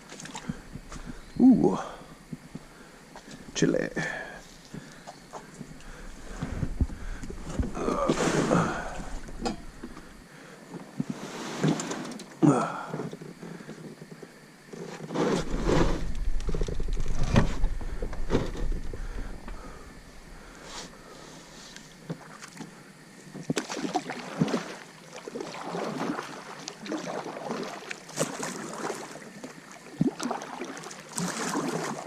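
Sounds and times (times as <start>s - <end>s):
wind rumble on microphone: 5.6s - 7.9s, 15.4s - 20.5s
water splashing around kayak: 22.1s - 32.0s.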